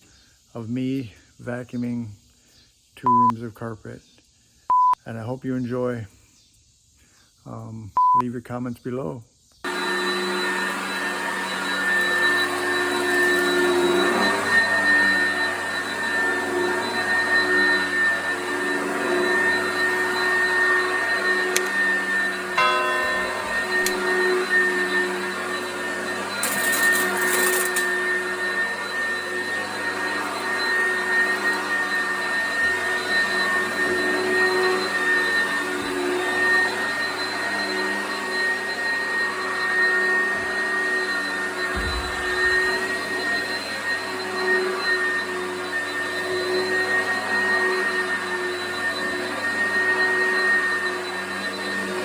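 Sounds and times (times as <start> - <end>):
vacuum cleaner running on carpet: 9.7 - 23.1, 24.2 - 52.0.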